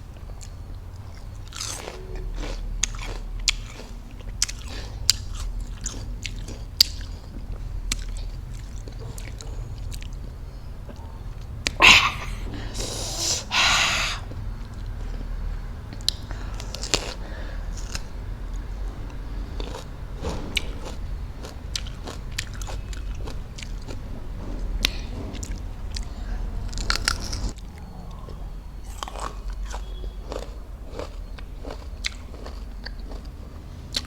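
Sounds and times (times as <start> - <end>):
chewing raw fruit crunches: 0.3 - 10.3, 19.6 - 24.0, 26.7 - 34.0.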